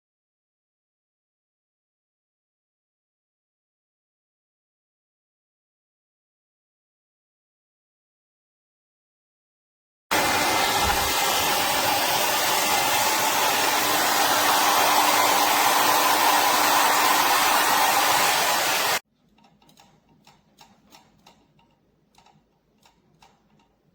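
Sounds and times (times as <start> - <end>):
hair dryer blowing: 10.1 - 19.0.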